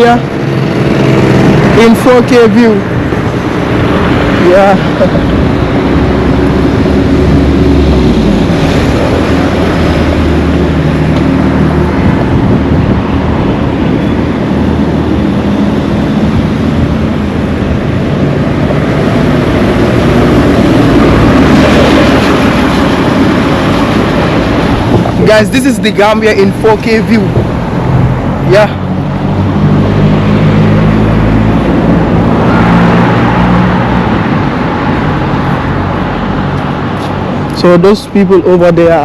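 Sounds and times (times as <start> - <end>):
road noise: 0.0 - 39.0
vehicle engines humming: 0.0 - 39.0.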